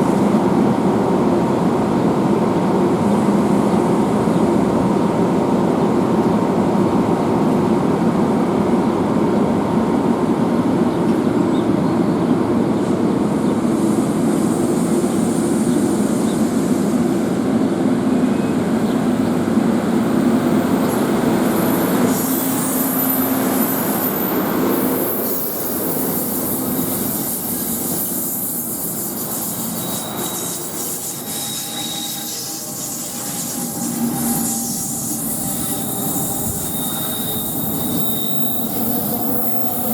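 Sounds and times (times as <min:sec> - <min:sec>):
train wheels rumbling on rails: 0:00.0 - 0:39.9
wheel squeal: 0:20.8 - 0:39.9.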